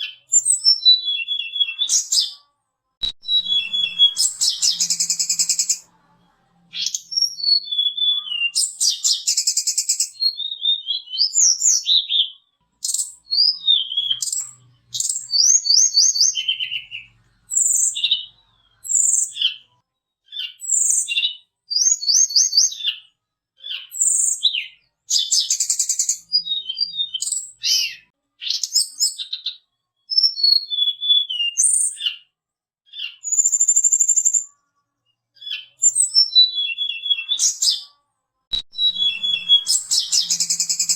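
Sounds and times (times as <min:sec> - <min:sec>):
songbird singing: 0:03.0 - 0:05.9, 0:06.7 - 0:19.7, 0:23.7 - 0:28.7, 0:38.5 - 0:40.9.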